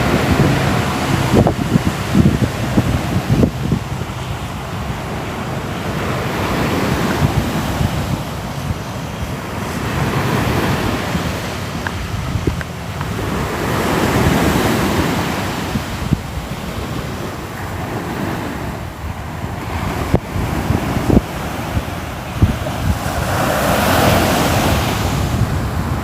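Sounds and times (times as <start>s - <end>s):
sea waves washing ashore: 0.0s - 26.0s.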